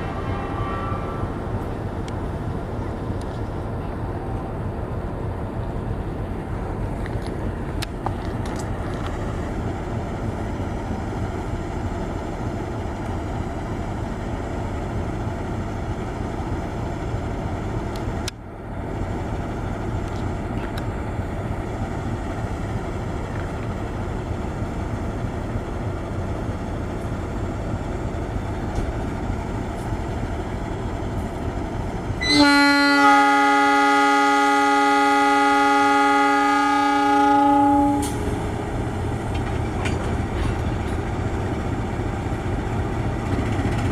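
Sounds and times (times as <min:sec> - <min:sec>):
train horn blast: 0:00.0 - 0:01.4, 0:32.2 - 0:38.5
train rumble: 0:00.0 - 0:43.9.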